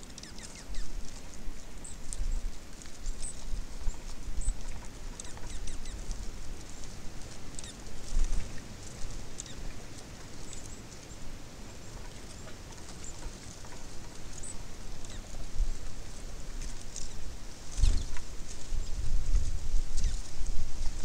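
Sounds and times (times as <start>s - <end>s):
birds chirping: 0.0s - 2.4s, 3.0s - 6.9s, 7.5s - 15.3s, 20.0s - 20.3s.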